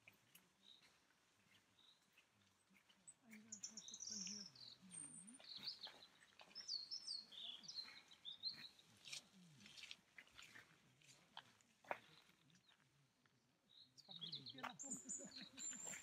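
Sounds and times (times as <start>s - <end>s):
birds chirping and trilling: 0.6s - 10.5s, 13.7s - 16.0s.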